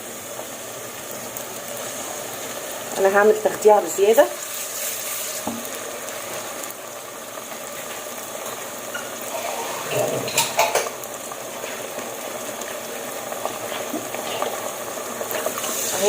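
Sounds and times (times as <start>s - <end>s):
paste sizzling in oil: 0.0s - 16.0s
spoon stirring and scraping pot: 8.9s - 10.9s.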